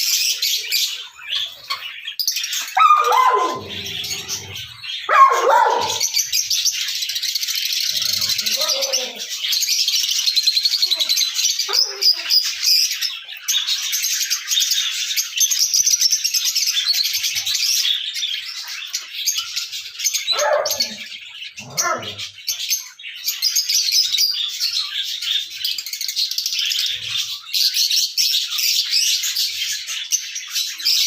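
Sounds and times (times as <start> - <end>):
parrot chirping and chattering: 0.1 - 7.0, 7.6 - 13.0, 20.2 - 22.4.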